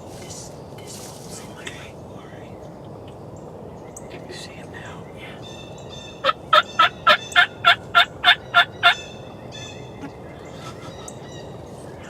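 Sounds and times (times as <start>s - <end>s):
wild turkey yelping: 5.4s - 11.5s.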